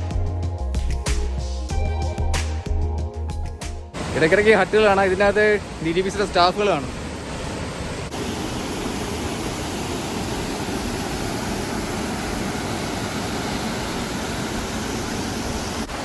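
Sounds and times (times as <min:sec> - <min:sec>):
waterfall rushing water: 0:04.0 - 0:16.0.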